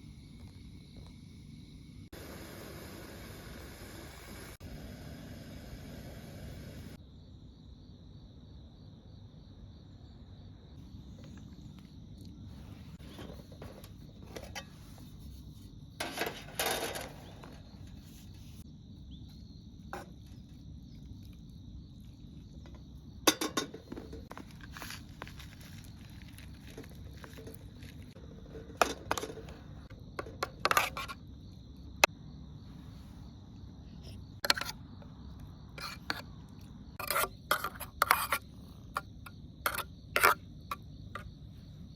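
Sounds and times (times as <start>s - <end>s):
insect chirring: 17.2s - 41.9s
utensils clinking against cookware: 23.3s - 24.2s.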